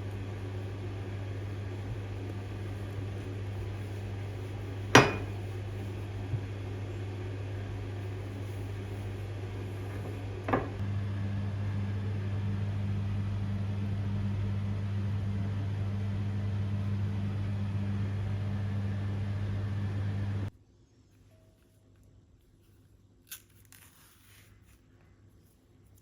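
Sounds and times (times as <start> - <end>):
electric appliance humming: 0.0 - 20.5.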